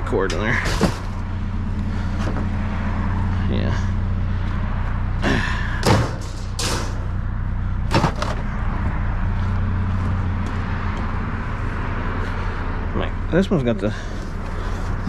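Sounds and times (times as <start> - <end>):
low engine hum: 0.0 - 15.0
bangs and knocks: 5.8 - 7.1, 7.9 - 8.4.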